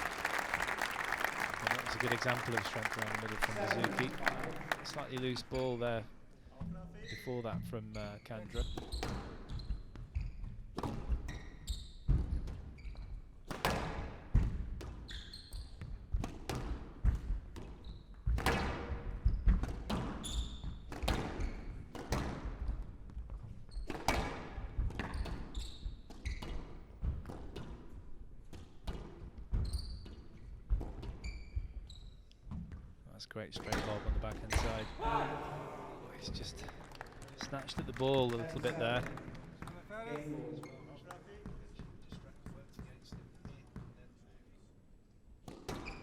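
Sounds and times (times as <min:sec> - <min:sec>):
squash ball striking rackets and walls: 0:08.8 - 0:11.3, 0:12.1 - 0:15.2, 0:15.8 - 0:31.3, 0:45.4 - 0:46.0.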